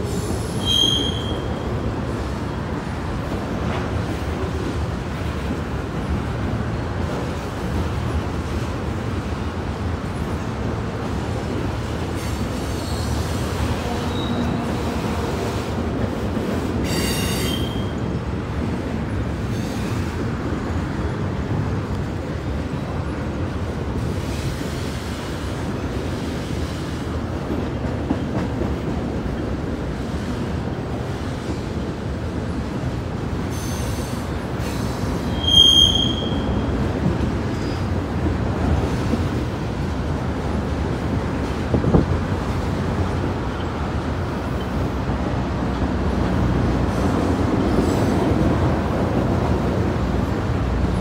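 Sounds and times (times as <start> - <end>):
freight train wheels rumbling: 0.0 - 51.0
high wheel squeal: 0.3 - 1.6, 16.9 - 18.0, 33.5 - 36.6.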